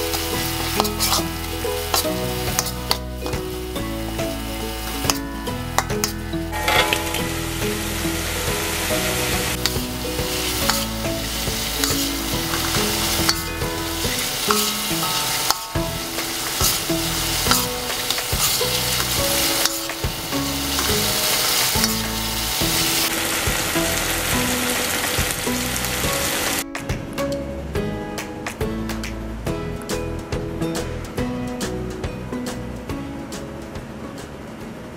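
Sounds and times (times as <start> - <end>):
metal spatula scraping pan: 0.0 - 3.6, 4.3 - 26.3
food sizzling in a wok: 0.0 - 26.6
soft background music: 0.0 - 34.9.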